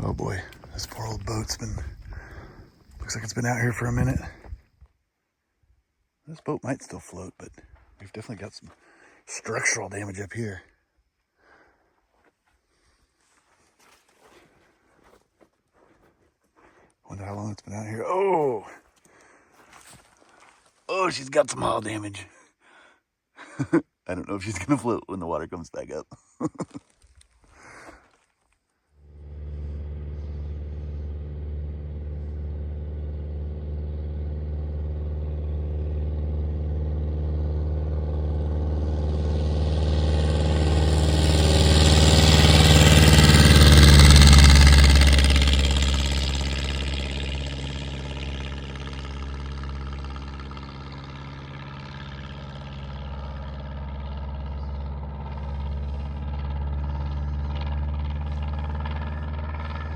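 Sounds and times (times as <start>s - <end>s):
light airplane passing by: 0.0s - 4.5s, 29.0s - 59.9s.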